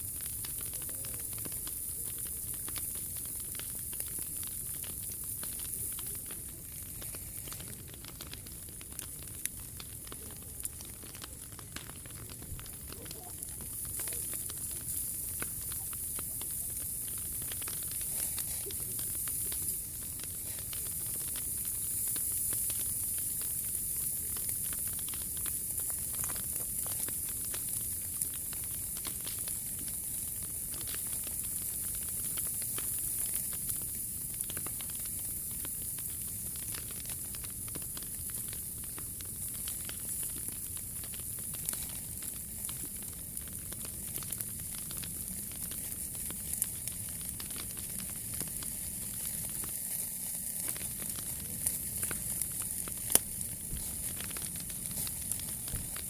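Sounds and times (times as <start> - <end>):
fire hissing: 0.0 - 56.0
wood fire crackling: 0.0 - 56.0.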